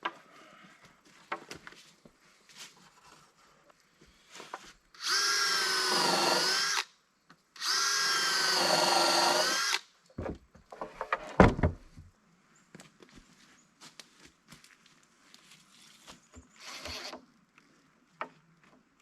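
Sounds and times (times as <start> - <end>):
power drill running: 5.0 - 6.8, 7.6 - 9.8, 16.6 - 17.2.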